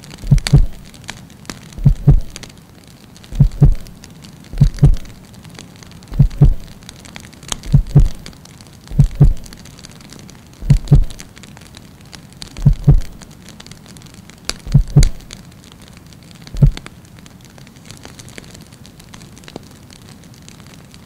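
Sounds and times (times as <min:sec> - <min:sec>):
faint crackling: 0:00.0 - 0:21.0
deep thuds: 0:00.2 - 0:00.9, 0:01.8 - 0:02.4, 0:03.3 - 0:04.0, 0:04.6 - 0:05.1, 0:06.1 - 0:06.8, 0:07.6 - 0:08.3, 0:08.9 - 0:09.6, 0:10.6 - 0:11.2, 0:12.6 - 0:13.2, 0:14.6 - 0:15.3, 0:16.6 - 0:16.8.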